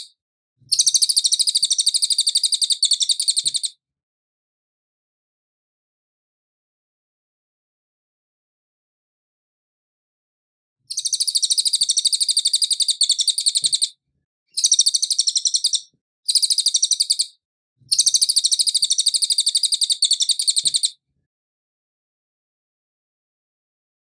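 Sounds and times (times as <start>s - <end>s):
songbird rapid trill: 0.8s - 3.7s, 10.9s - 13.9s, 14.5s - 17.3s, 17.9s - 20.9s.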